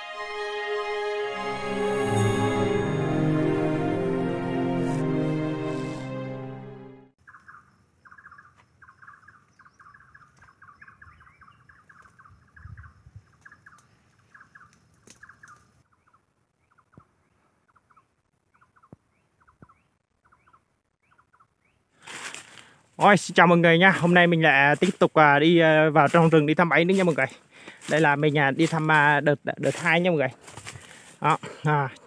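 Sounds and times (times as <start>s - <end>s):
intro music: 0.0s - 7.2s
birds chirping: 7.2s - 21.9s.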